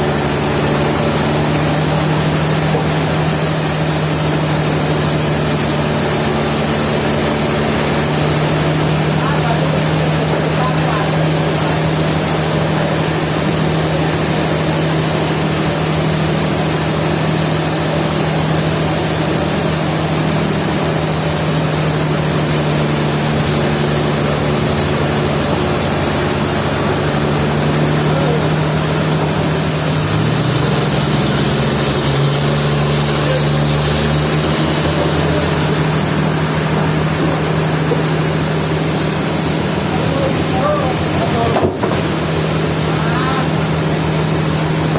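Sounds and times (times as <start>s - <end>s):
sawmill machinery humming: 0.0s - 44.9s
bright hiss: 20.9s - 26.8s, 29.4s - 36.0s.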